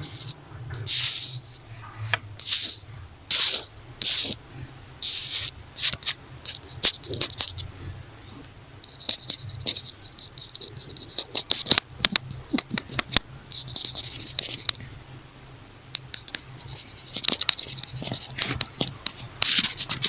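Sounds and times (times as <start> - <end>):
scratching on notebook cover: 0.0 - 4.4, 5.0 - 7.7, 8.9 - 14.8, 16.0 - 20.0.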